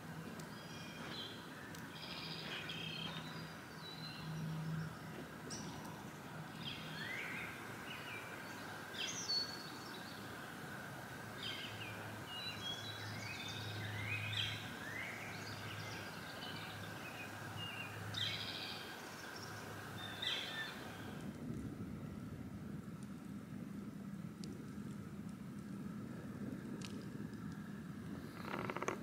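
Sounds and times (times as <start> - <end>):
outdoor background hiss: 0.0 - 29.0
birds singing and chirping: 0.3 - 10.4, 11.4 - 21.3.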